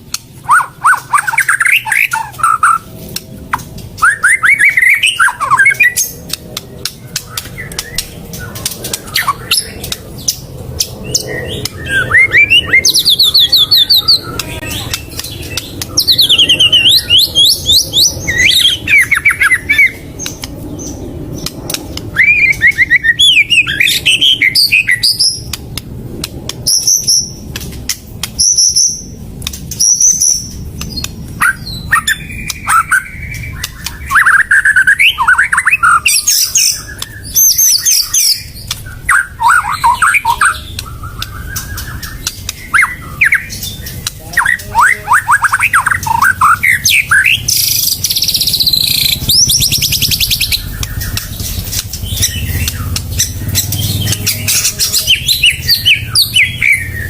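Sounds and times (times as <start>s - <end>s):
bird clicking notes: 0.0s - 17.2s, 17.9s - 23.0s, 25.2s - 34.6s, 36.4s - 56.6s
bird singing varied whistles: 4.0s - 6.2s, 44.5s - 51.4s.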